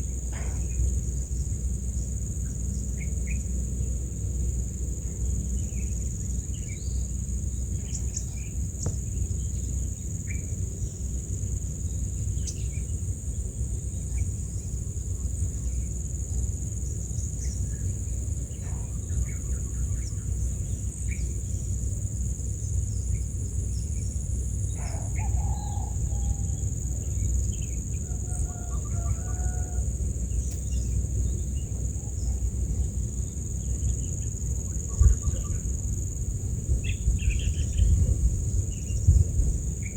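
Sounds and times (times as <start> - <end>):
low constant rumble: 0.0 - 39.9
longer bird calls: 24.7 - 33.0.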